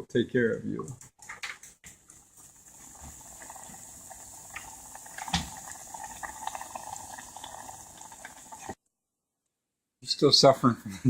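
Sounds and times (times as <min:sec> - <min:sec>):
oil popping: 0:01.1 - 0:08.8
food sizzling in deep fryer: 0:02.0 - 0:08.8.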